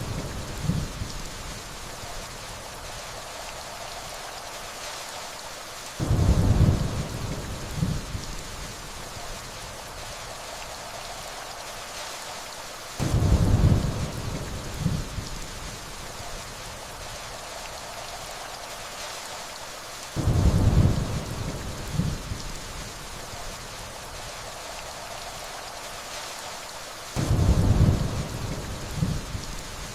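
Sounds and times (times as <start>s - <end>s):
steady rainfall: 0.0s - 29.9s
distant thunder rolling: 6.0s - 10.9s, 13.0s - 15.8s, 20.2s - 23.0s, 27.2s - 29.8s.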